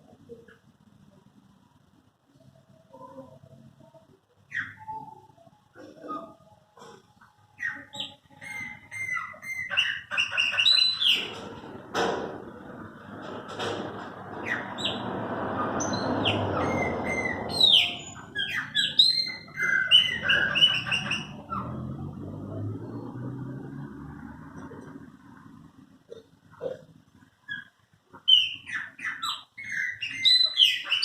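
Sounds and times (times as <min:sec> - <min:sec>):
blackbirds singing: 0:04.4 - 0:07.0, 0:07.6 - 0:11.5, 0:14.3 - 0:22.0, 0:27.4 - 0:31.0.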